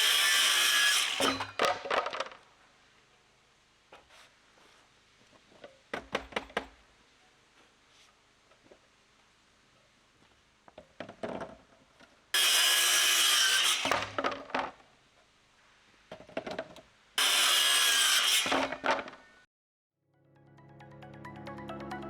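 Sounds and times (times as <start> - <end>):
power saw cutting plywood: 0.0 - 1.7, 12.4 - 14.4, 17.2 - 19.3
music: 20.0 - 22.0.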